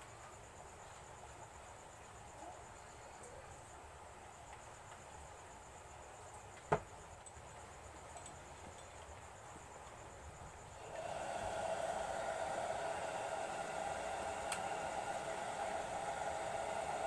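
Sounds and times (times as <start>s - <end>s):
faint crickets chirping: 0.0s - 17.0s.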